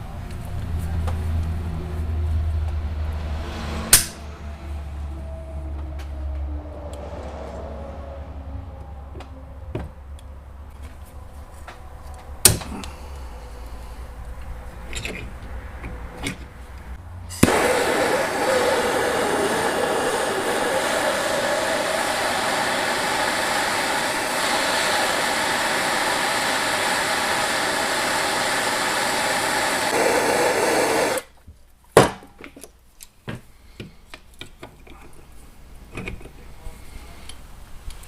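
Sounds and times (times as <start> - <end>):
low hum: 0.0 - 29.4
electric power tool running: 17.4 - 31.3.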